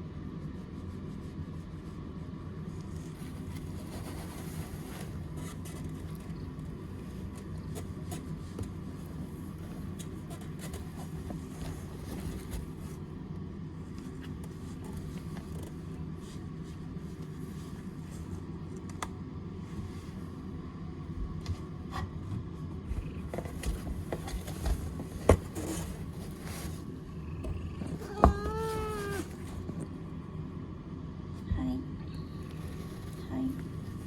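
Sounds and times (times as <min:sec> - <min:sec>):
cat purring: 0:22.8 - 0:30.2.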